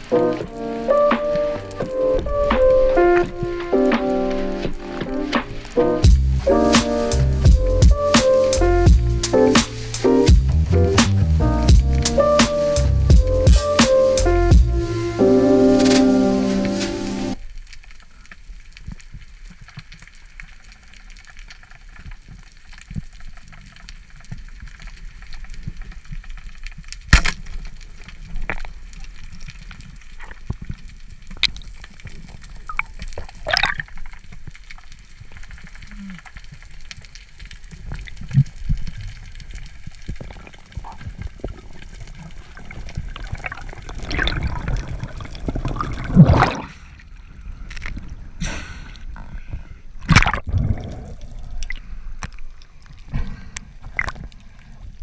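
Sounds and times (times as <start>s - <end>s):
water sloshing and gurgling: 32.7s - 34.1s, 40.1s - 48.2s, 49.9s - 55.0s.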